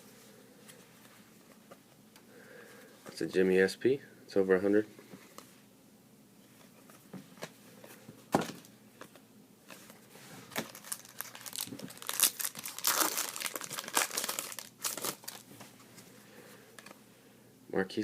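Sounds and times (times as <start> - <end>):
plastic packaging crinkling: 9.7 - 15.5.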